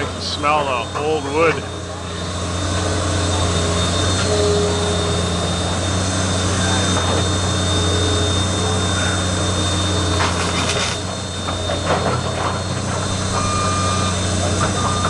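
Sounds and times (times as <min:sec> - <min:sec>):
heavy machinery engine droning: 0:00.0 - 0:15.0.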